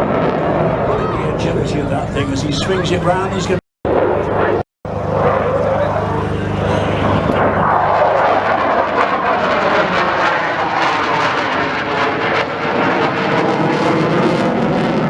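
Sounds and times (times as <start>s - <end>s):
aircraft engine flying past: 0.0s - 15.0s.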